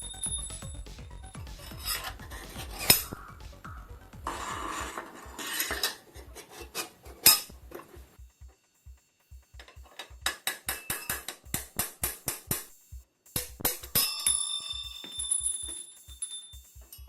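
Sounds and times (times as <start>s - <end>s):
metal tools scraping and clinking: 4.3s - 8.0s, 13.6s - 17.0s
quick metal taps: 9.6s - 12.7s, 13.4s - 14.4s
sharp metal strike: 13.4s - 15.6s.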